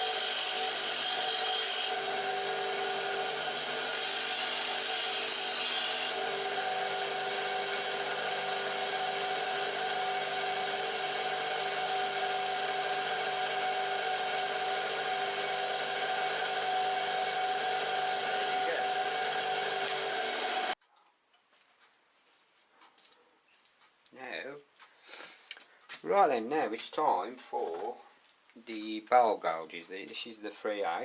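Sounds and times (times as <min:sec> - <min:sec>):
bench grinder motor running: 0:00.0 - 0:20.8.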